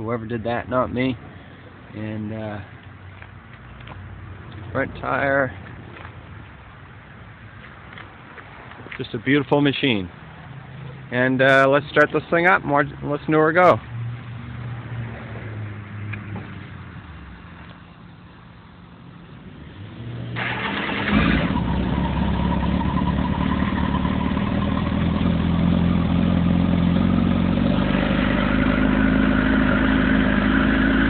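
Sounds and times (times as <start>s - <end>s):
motorcycle starter cranking: 20.4s - 21.9s
motorcycle engine idling: 21.8s - 30.9s.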